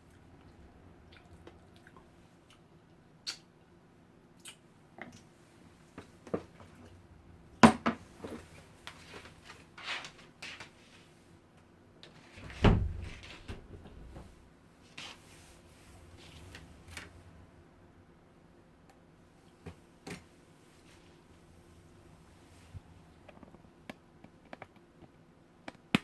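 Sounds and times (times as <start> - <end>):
heavy thud: 12.5 - 14.4.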